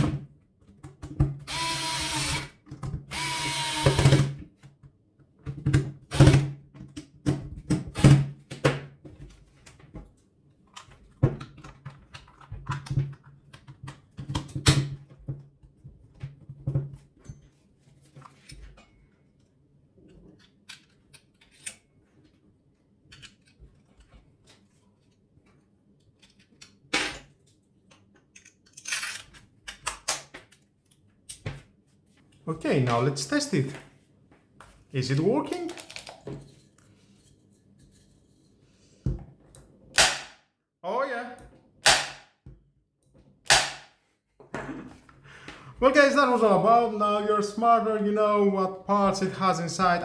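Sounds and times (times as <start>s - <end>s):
power screwdriver whirring: 1.5s - 2.5s, 3.1s - 4.2s.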